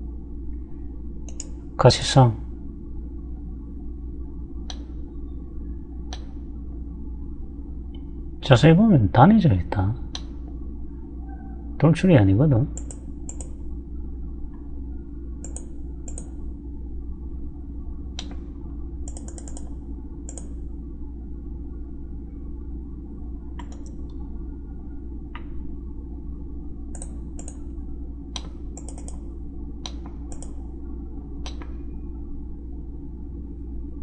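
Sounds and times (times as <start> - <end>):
low electrical hum: 0.0 - 34.0
mouse and keyboard clicks: 1.3 - 1.6, 12.8 - 13.5, 19.1 - 19.7, 23.6 - 24.0, 28.4 - 29.2, 29.9 - 30.6.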